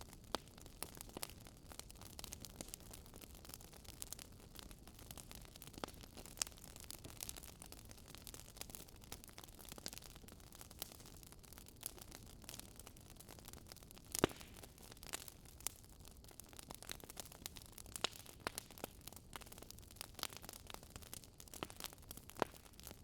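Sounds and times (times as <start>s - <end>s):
campfire crackling and popping: 0.0s - 23.0s
soft hiss of burning: 0.0s - 23.0s.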